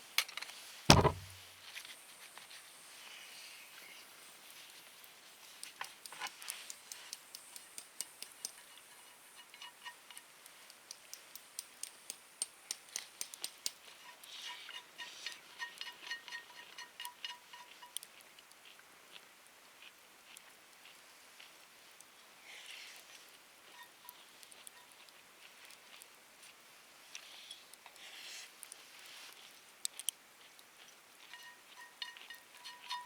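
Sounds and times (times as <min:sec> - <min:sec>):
wood fire crackling and popping: 0:10.1 - 0:14.0.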